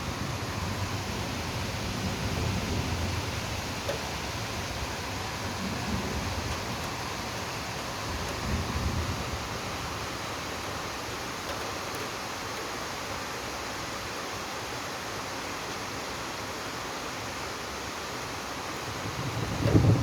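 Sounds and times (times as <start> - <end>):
steady rain hiss: 0.0 - 20.0
low thunder rumble: 5.4 - 9.9, 19.0 - 20.0.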